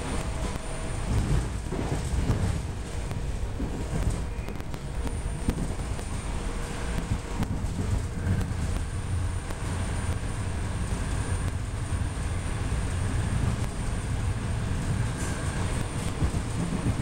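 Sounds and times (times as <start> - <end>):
train wheels rumbling on rail: 0.0 - 17.0
faint steady whine: 2.8 - 16.0.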